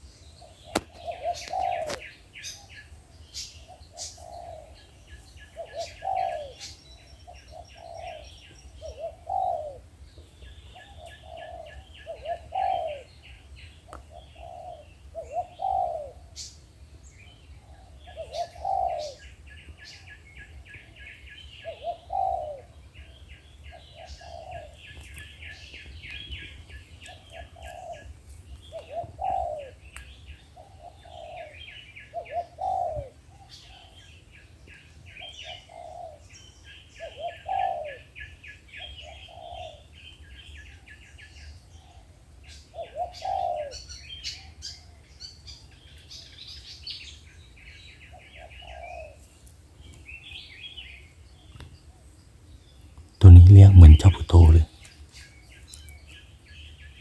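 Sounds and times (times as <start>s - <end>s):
doves cooing: 0.8s - 2.0s, 5.6s - 6.7s, 7.5s - 9.8s, 11.2s - 13.2s, 14.2s - 16.2s, 18.1s - 19.3s, 21.7s - 22.8s, 28.7s - 29.8s, 32.2s - 33.2s, 42.8s - 43.8s.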